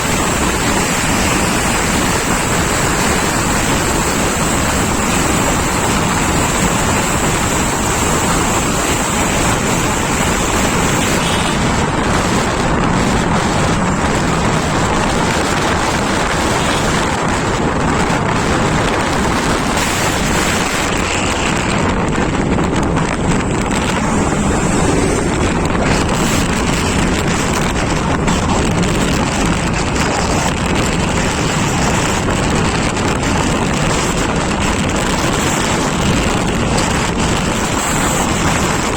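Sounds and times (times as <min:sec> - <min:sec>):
moving vehicle running noise: 0:00.0 - 0:38.9
wind rushing on microphone: 0:00.0 - 0:38.9.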